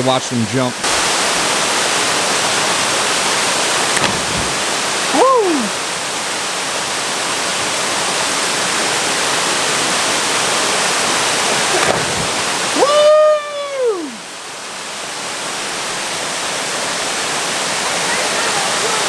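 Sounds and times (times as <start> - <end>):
waterfall rushing: 0.8 - 19.0
person calling: 5.0 - 5.9, 12.6 - 14.3.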